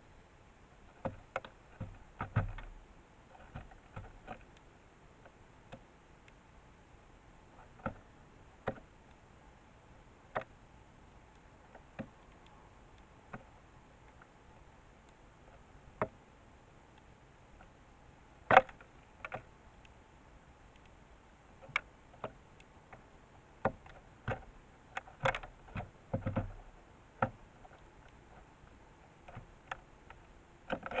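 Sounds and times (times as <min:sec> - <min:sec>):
sparrow pecking seed: 0:09.9 - 0:20.0.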